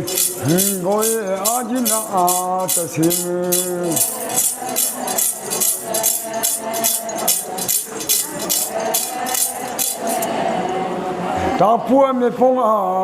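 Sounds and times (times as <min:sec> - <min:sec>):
metallic jingling of rings: 0:00.0 - 0:10.3.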